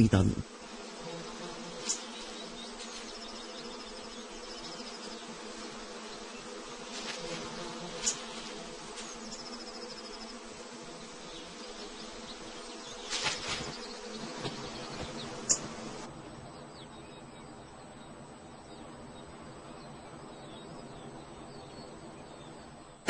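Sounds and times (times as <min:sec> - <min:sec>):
bees buzzing: 0:00.0 - 0:16.9.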